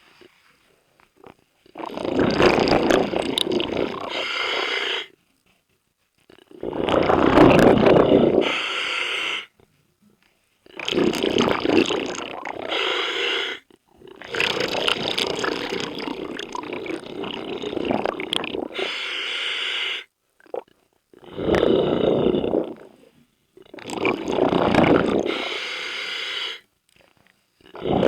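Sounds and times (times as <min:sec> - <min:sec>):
exhaled bubbles underwater: 0:01.8 - 0:04.3, 0:06.6 - 0:08.5, 0:10.7 - 0:12.9, 0:14.0 - 0:18.9, 0:23.7 - 0:25.5, 0:27.7 - 0:28.0.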